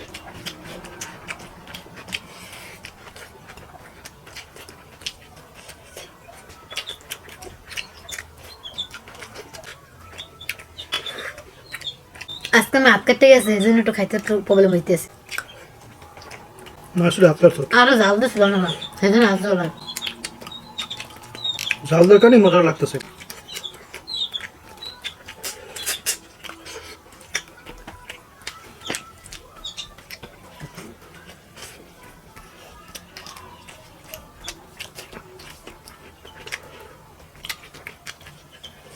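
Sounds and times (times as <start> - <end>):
wet chewing sounds: 0.0 - 38.9
high bird chirps: 15.3 - 25.2.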